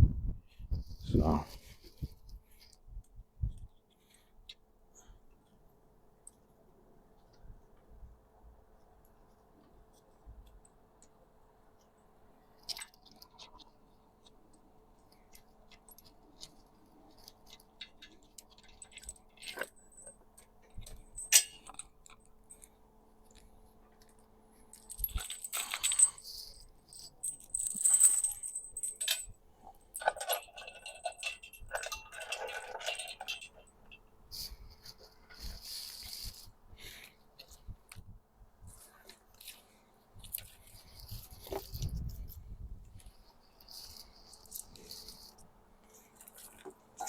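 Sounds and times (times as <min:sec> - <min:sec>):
metal tools clinking and rattling: 0:17.2 - 0:22.7, 0:24.7 - 0:37.0
metal clatter and scraping: 0:24.7 - 0:36.5.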